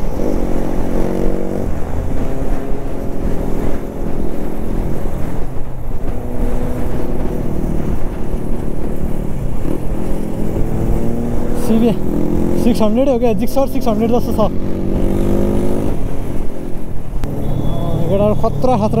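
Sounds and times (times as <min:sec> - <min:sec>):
wind noise on microphone: 0:00.0 - 0:12.9
motorcycle engine running: 0:00.0 - 0:19.0.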